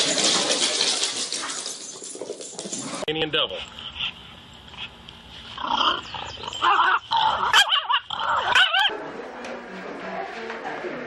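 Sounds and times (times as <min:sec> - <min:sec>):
dog whining: 0:05.6 - 0:08.9.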